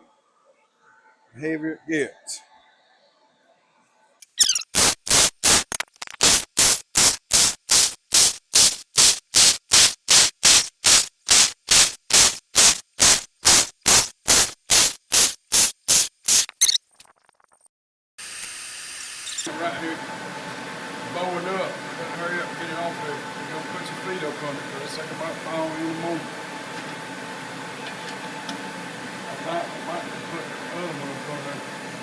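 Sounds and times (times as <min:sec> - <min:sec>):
welding arc crackling: 0:04.2 - 0:17.4, 0:18.2 - 0:19.5
steady hiss: 0:04.8 - 0:16.5.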